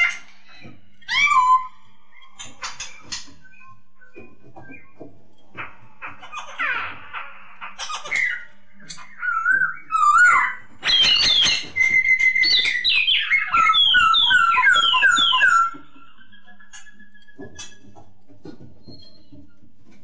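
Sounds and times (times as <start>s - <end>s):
laughingthrush singing whistled phrases: 9.1s - 17.4s.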